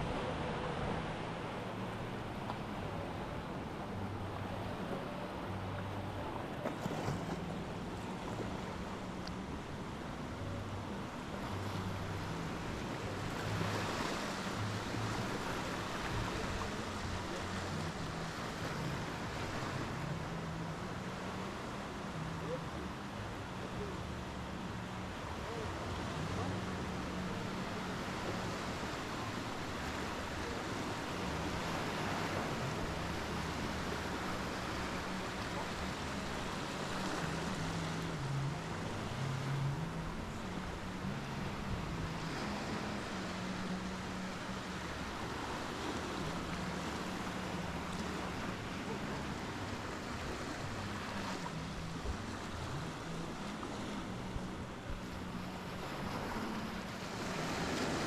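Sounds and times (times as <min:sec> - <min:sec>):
surf washing onto beach: 0:24.6 - 0:58.0.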